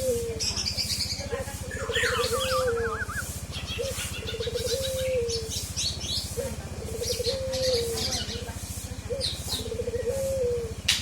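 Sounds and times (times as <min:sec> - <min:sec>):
steady low hum: 0:00.0 - 0:11.0
oriole whistled song: 0:01.8 - 0:03.3.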